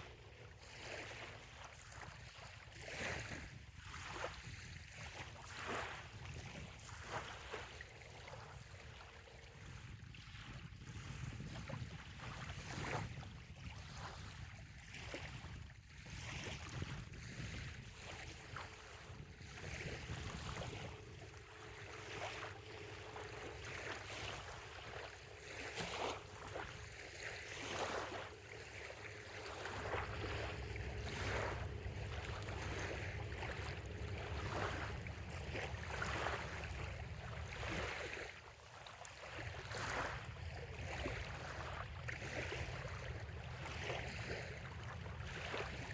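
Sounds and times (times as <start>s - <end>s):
waves lapping on sandy shore: 0.0s - 45.9s
wind rumble on microphone: 0.0s - 45.9s
faint steady hum: 18.4s - 38.6s.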